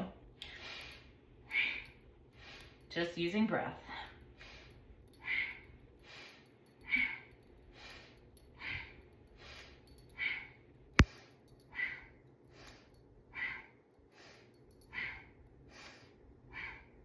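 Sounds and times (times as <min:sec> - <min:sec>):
breathing through the nose: 0:04.4 - 0:17.0.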